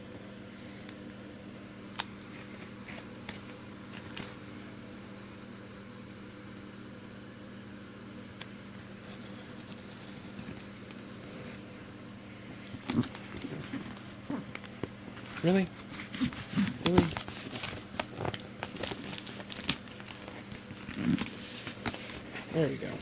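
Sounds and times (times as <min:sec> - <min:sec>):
steady low hum: 0:00.0 - 0:23.0
cardboard parcel clicks and scrapes: 0:12.8 - 0:23.0.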